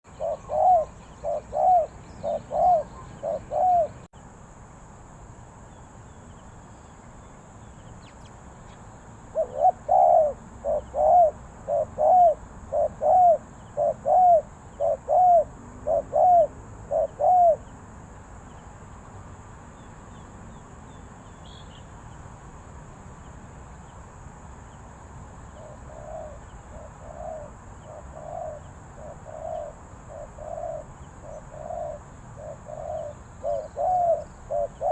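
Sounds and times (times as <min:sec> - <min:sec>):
dove cooing: 0:00.1 - 0:04.1, 0:09.3 - 0:17.7, 0:25.6 - 0:34.9.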